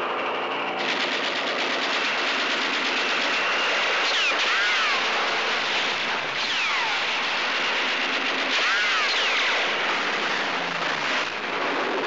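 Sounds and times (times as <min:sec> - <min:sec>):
falling whines: 0:00.0 - 0:12.0.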